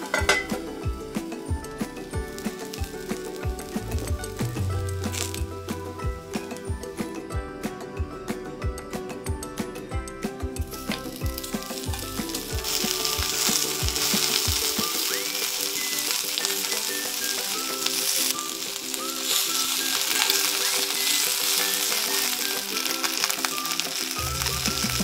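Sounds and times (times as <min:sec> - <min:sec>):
shrimp sizzling in hot oil: 0:00.0 - 0:06.6, 0:10.7 - 0:25.0
chopsticks turning shrimp: 0:10.9 - 0:25.0.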